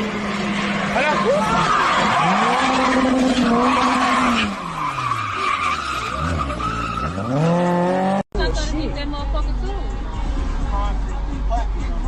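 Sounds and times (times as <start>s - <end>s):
tires squealing and skidding: 0.0s - 8.2s
car engine revving: 0.0s - 12.0s.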